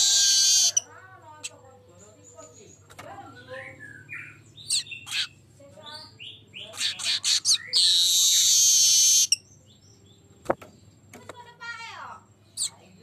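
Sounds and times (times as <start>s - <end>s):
bird high buzzing wheeze: 0.0s - 0.9s, 6.8s - 9.4s.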